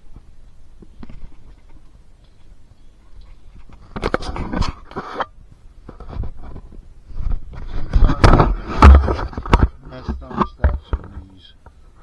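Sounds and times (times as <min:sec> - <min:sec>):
knocks clicks and scrapes: 0:05.9 - 0:11.4
heavy thump: 0:07.9 - 0:11.2.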